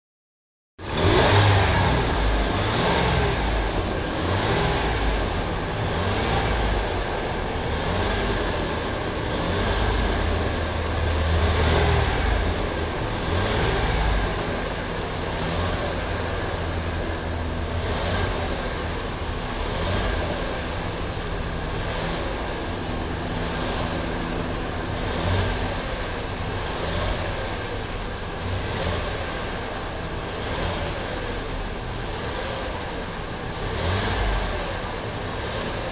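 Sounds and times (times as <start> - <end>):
car engine revving: 0.8 - 35.9.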